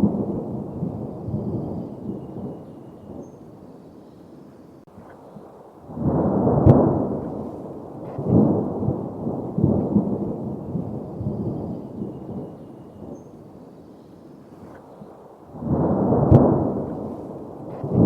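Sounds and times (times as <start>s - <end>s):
steady rain: 0.0s - 2.5s, 3.5s - 18.0s
thunder rolling: 0.0s - 3.2s, 5.4s - 13.2s, 15.5s - 18.0s.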